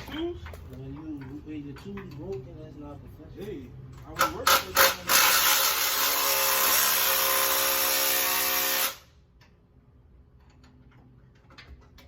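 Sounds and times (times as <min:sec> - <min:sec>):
power drill running: 0:04.7 - 0:09.1.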